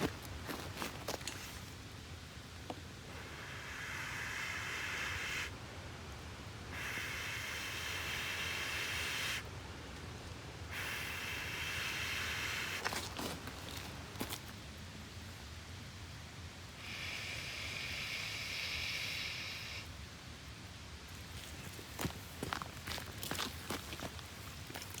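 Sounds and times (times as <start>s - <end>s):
person blowing on kindling: 10.7s - 13.2s.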